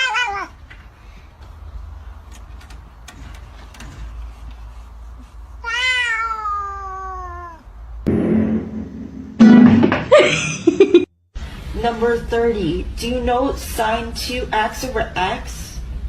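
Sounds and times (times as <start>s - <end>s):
cat meowing: 0.0s - 0.6s, 5.6s - 7.7s
rough low noise: 8.0s - 10.1s.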